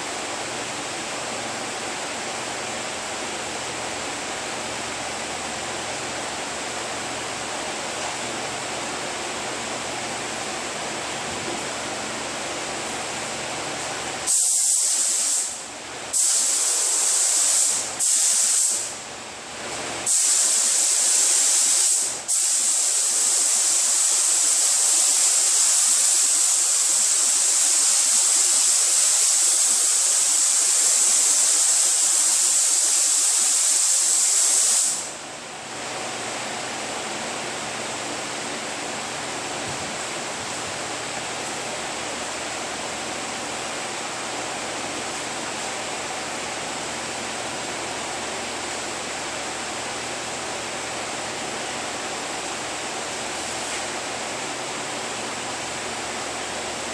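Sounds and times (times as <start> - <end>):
air gun hissing: 14.2 - 19.0, 20.0 - 35.2.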